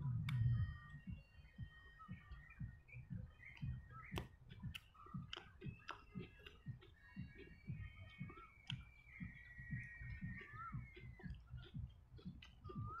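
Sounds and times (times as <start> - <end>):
mouth chewing food: 0.1 - 13.0
sharp wet mouth clicks: 3.5 - 8.8.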